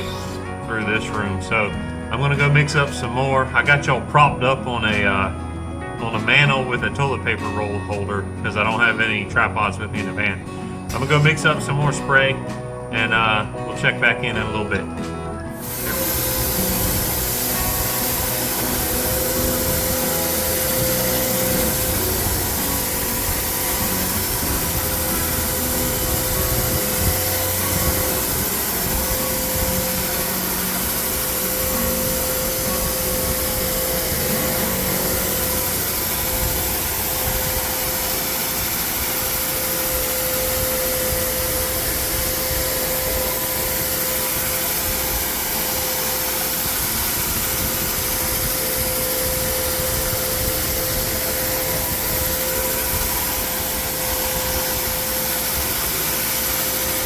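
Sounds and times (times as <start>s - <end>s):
carpet extractor vacuum whine: 0.0s - 57.0s.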